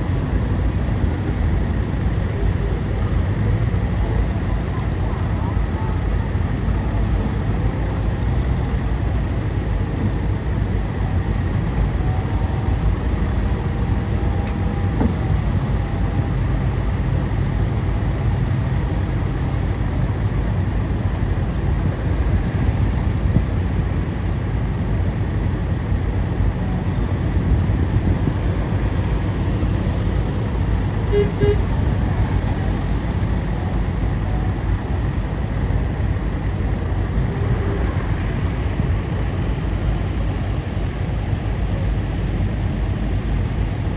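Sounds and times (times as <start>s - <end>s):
bulldozer diesel engine rumble: 0.0s - 43.9s.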